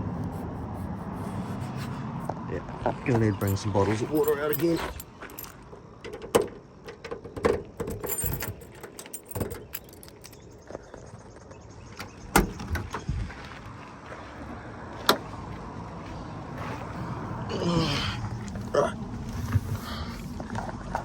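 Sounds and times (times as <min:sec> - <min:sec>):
keys jangling: 0:03.2 - 0:10.6.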